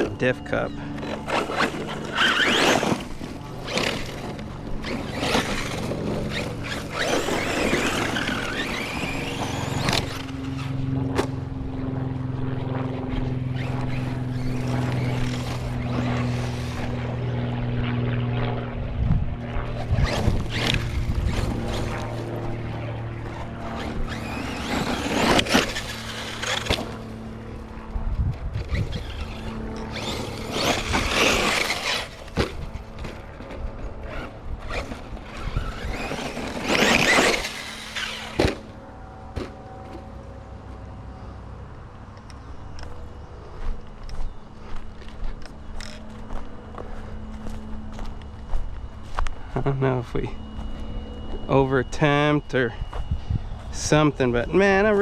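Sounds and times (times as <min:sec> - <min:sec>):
electric motor bursts: 0:00.0 - 0:10.9, 0:19.7 - 0:27.6, 0:28.7 - 0:32.4, 0:34.1 - 0:38.8
tyres on dirt: 0:00.0 - 0:11.5, 0:12.5 - 0:17.6, 0:19.6 - 0:27.9, 0:28.5 - 0:40.2
steady low hum: 0:00.0 - 0:55.0.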